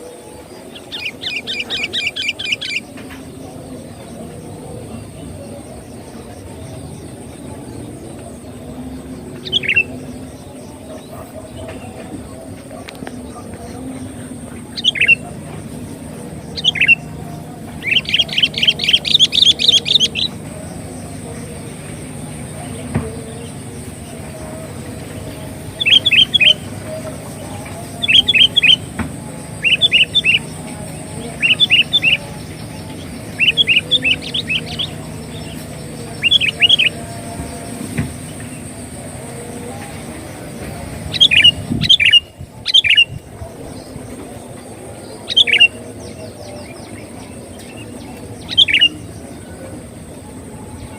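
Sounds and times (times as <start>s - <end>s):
bird whistling call: 16.5s - 20.4s, 41.1s - 43.2s, 48.4s - 49.1s.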